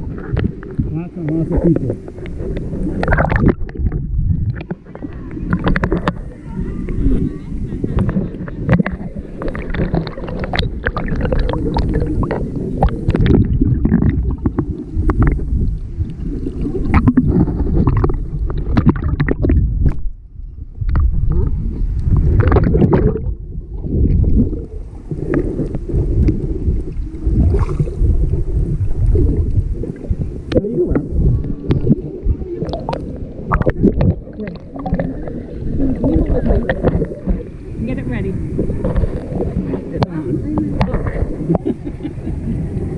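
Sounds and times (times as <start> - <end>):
water splashing against boat: 0.0 - 20.1, 20.9 - 42.9
gusty wind on microphone: 0.0 - 42.9.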